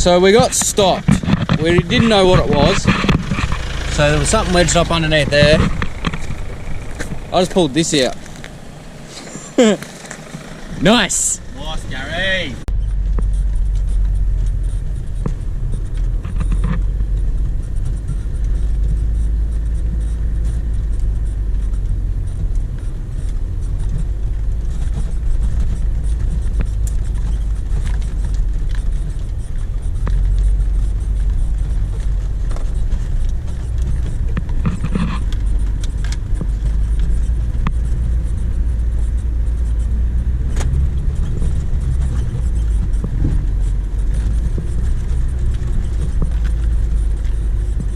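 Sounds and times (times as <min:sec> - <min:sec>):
clicks and rattles: 0:00.0 - 0:08.9
vehicle engine and road rumble: 0:00.0 - 0:47.9.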